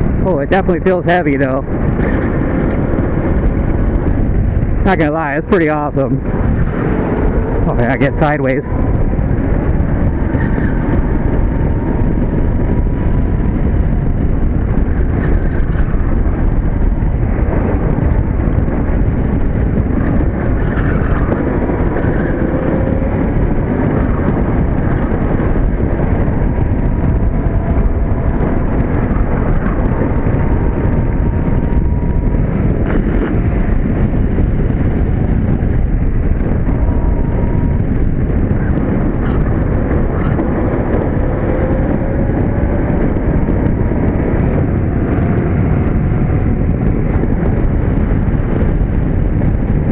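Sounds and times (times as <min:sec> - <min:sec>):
go-kart rumble: 0:00.0 - 0:49.9
wind rush over microphone: 0:00.0 - 0:49.9.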